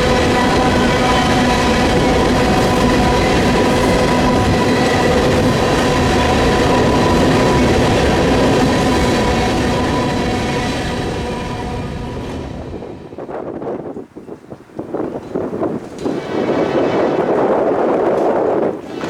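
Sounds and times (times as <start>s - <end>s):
freight train cars rumbling past: 0.0s - 19.0s
wheels clattering on rails: 13.1s - 19.0s.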